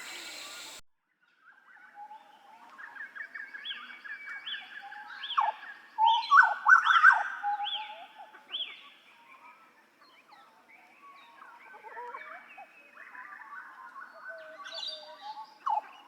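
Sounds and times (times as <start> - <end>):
bird song fluting notes: 0.0 - 0.8.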